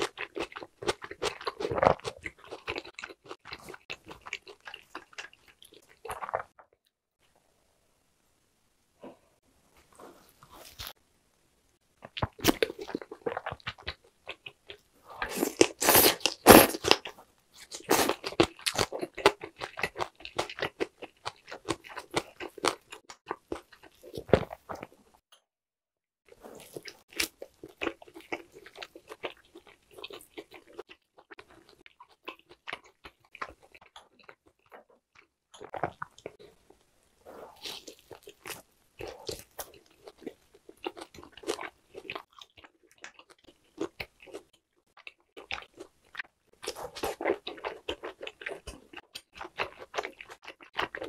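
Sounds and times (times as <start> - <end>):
person chewing meat: 0.0 - 6.5, 12.0 - 25.0, 26.3 - 51.0.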